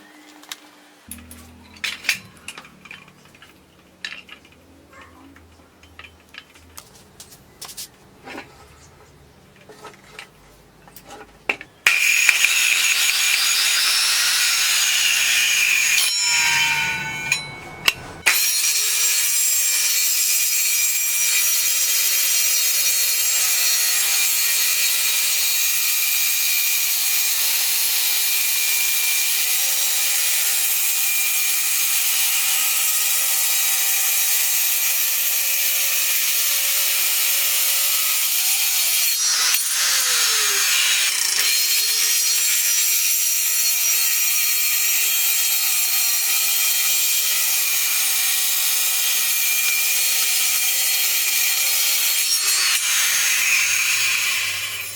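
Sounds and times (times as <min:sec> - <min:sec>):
circular saw cutting wood: 0:01.1 - 0:06.8, 0:11.8 - 0:54.9.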